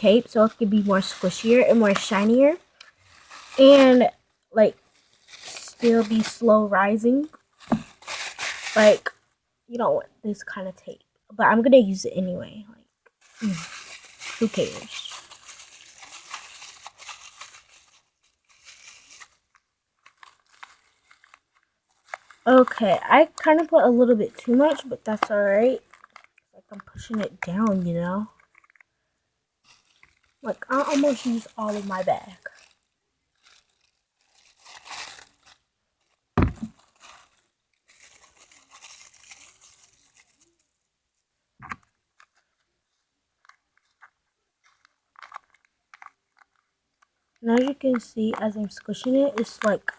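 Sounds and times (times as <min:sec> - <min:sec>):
paper crinkling and rustling: 0:00.0 - 0:04.1, 0:04.8 - 0:09.1, 0:13.2 - 0:23.8, 0:24.4 - 0:28.9, 0:29.6 - 0:40.8, 0:43.4 - 0:49.9
loud thud: 0:36.4 - 0:36.7.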